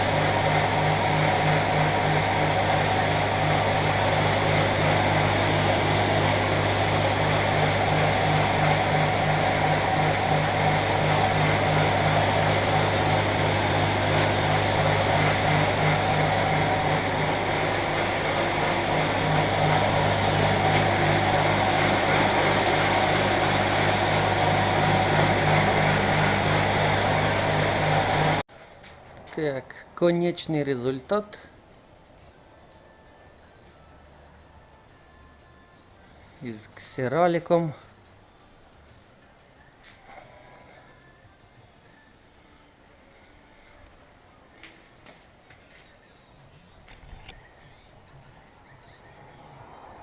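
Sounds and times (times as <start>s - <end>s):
machine hum with regular throb: 0.0s - 28.4s
air hiss: 8.6s - 27.5s.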